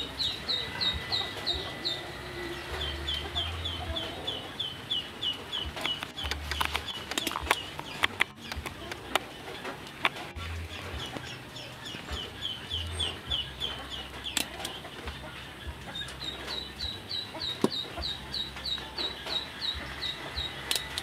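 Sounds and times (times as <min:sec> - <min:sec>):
low steady hum: 0:00.0 - 0:21.0
small bird peeping: 0:00.0 - 0:21.0
sharp clicks: 0:04.9 - 0:21.0.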